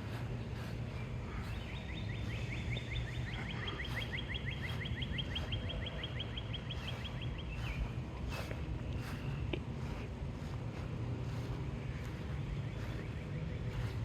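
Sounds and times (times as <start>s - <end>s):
bird singing fast trill: 0.0s - 8.0s.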